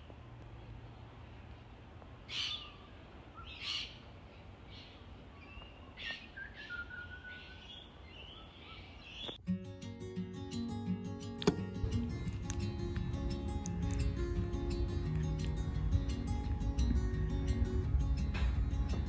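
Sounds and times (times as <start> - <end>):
harsh bird calls: 2.3 - 9.4
whistled and chirping bird notes: 3.4 - 3.9, 5.4 - 9.4
acoustic guitar music: 9.4 - 19.0.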